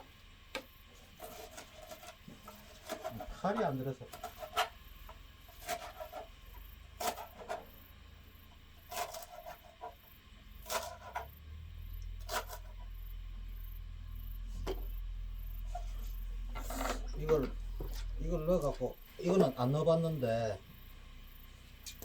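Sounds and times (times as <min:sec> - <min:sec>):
low rumble: 0:11.4 - 0:19.1.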